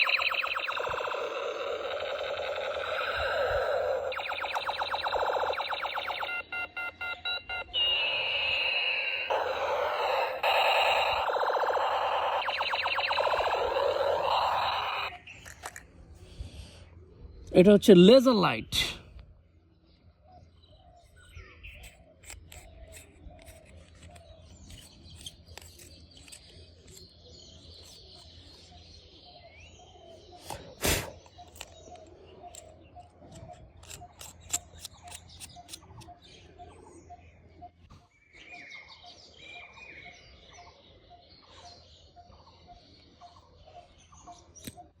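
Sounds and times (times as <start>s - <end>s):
short evenly spaced pips: 0.0s - 6.5s, 9.3s - 15.1s
scattered clicks: 0.0s - 7.7s, 9.3s - 15.9s
faint bird chirping: 0.0s - 15.5s.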